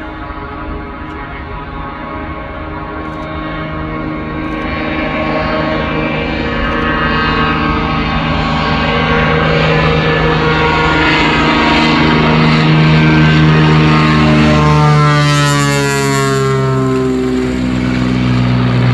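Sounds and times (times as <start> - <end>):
plane propeller engine running: 0.0 - 18.9.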